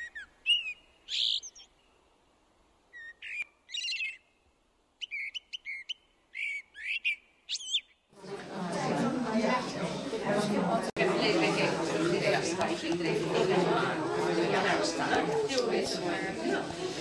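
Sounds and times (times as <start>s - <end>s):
songbird singing: 0.0s - 8.1s.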